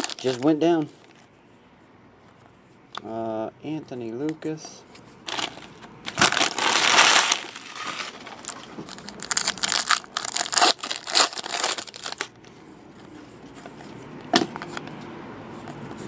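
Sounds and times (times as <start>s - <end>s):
foil wrappers tearing and crinkling: 0.0s - 0.6s, 5.3s - 12.3s.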